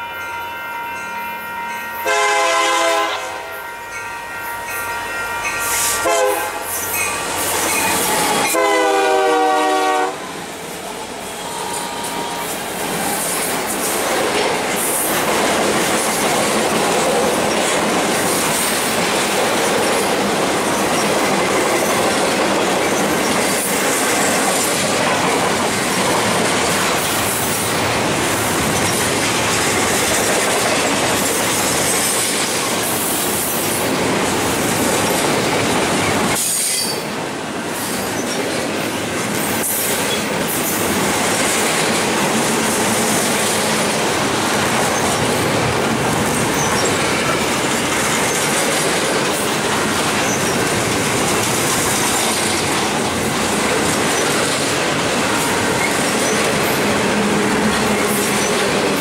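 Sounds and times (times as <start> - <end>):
locomotive air horn: 0.0 - 10.4, 11.2 - 12.7
freight train cars rumbling past: 0.0 - 59.0.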